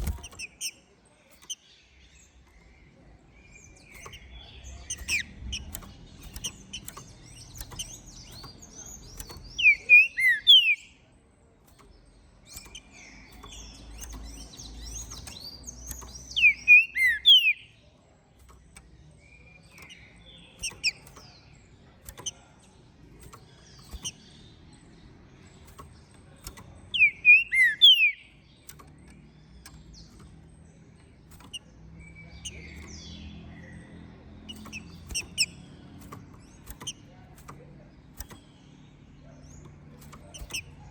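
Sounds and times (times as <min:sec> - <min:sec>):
soft high bird twittering: 0:00.0 - 0:40.9
bird whistling song phrases: 0:07.6 - 0:11.0, 0:12.6 - 0:17.8, 0:26.9 - 0:28.4.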